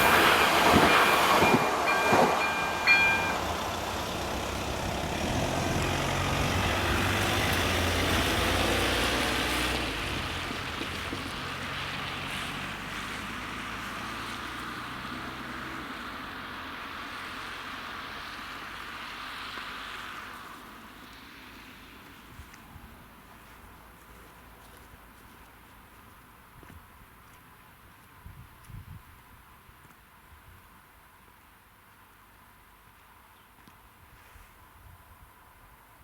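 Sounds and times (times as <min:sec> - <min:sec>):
diesel train engine and rolling: 0:00.0 - 0:29.8.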